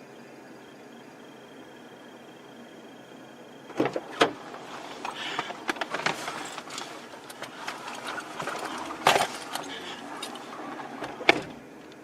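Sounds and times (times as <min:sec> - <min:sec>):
clicks and rattles: 0:03.7 - 0:12.0.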